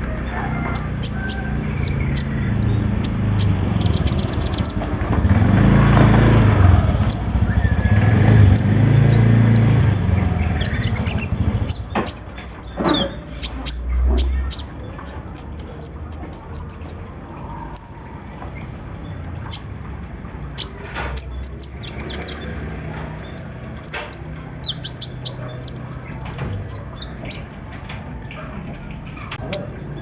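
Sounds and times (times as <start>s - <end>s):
sunbirds chirping: 0.0s - 30.0s.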